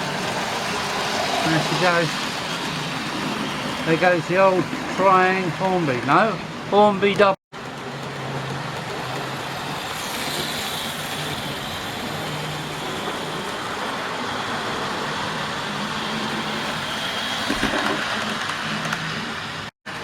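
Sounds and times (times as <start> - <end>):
wheels rumbling on rail: 7.5 - 19.7.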